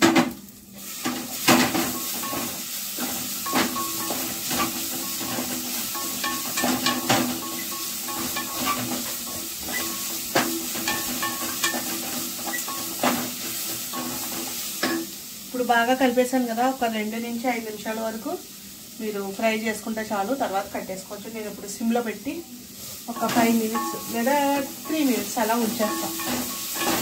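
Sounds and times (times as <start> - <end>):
leaves sizzling in oil: 0.0 - 27.0
spatula scraping a pan: 0.9 - 15.0, 22.8 - 27.0.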